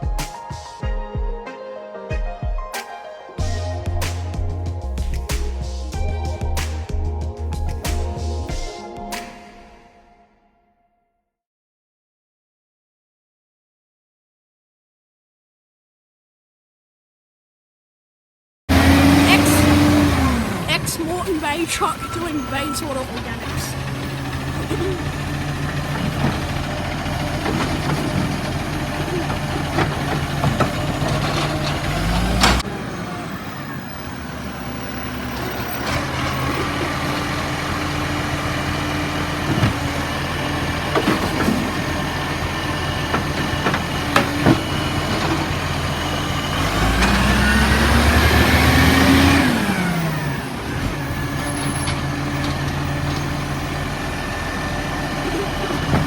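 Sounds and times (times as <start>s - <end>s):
garbage truck engine idling: 18.7s - 56.0s
truck engine revving: 18.7s - 56.0s.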